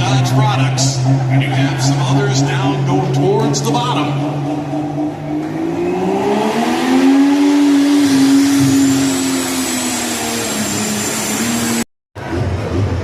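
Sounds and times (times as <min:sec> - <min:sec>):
rough low rumble: 0:00.0 - 0:06.8
high turbocharger whistle: 0:00.0 - 0:11.9
diesel truck engine pulling hard: 0:00.0 - 0:13.0.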